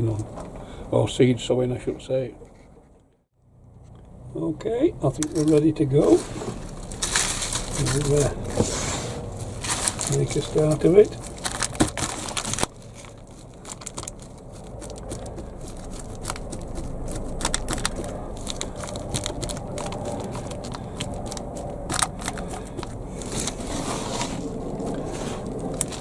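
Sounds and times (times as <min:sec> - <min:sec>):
hands crunching potting compost: 0:05.0 - 0:26.0.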